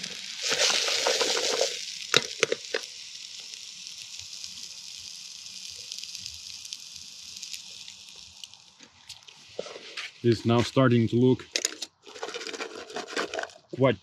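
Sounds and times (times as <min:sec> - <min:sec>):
food sizzling in a pan: 0:00.0 - 0:10.4.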